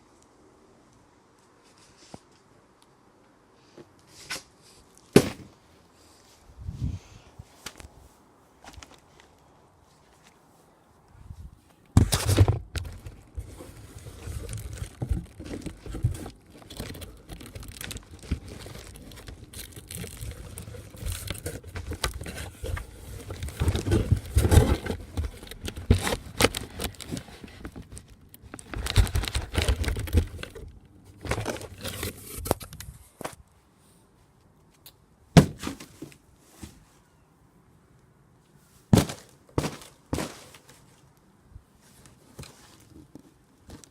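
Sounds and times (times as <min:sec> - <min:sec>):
pole hitting cardboard box: 0:05.1 - 0:05.6, 0:35.4 - 0:36.8, 0:38.9 - 0:40.6
cardboard crumpling and tearing: 0:12.0 - 0:32.7.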